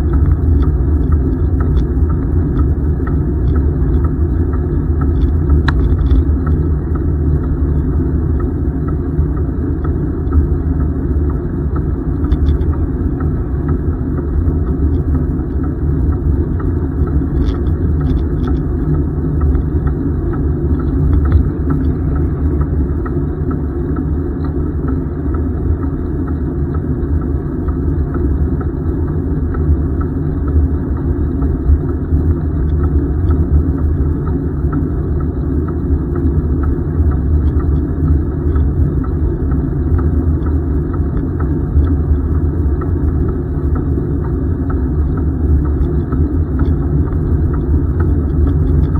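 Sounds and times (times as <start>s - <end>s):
wind buffeting microphone: 0.0s - 26.4s
faint ticks: 0.0s - 48.9s.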